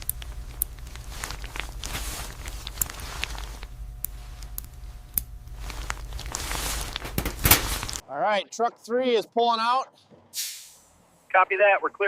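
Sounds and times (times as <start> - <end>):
footsteps: 0.0 - 4.5, 5.6 - 8.0
steady low hum: 0.0 - 12.0.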